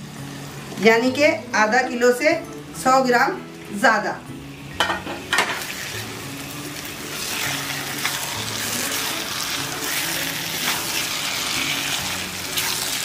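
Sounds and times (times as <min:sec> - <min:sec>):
chicken sizzling in oil: 0:04.5 - 0:13.0.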